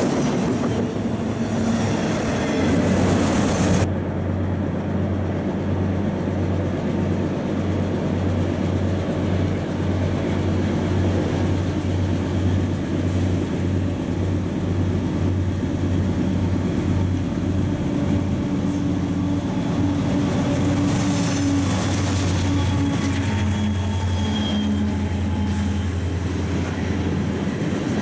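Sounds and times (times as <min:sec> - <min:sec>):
locomotive engines rumbling: 0:00.0 - 0:28.0
hissing wheel and rail noise: 0:09.0 - 0:28.0
faint squeal: 0:21.2 - 0:26.2.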